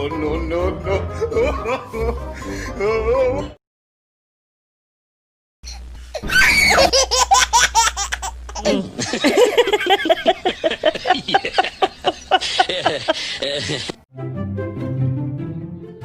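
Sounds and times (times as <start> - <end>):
person laughing hard: 1.2 - 2.2, 6.2 - 8.0, 8.6 - 14.0.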